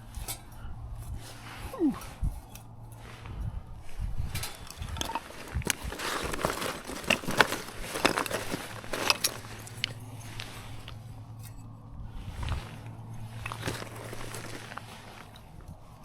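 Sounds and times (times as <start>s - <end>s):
campfire wood cracking and snapping: 3.9s - 11.0s.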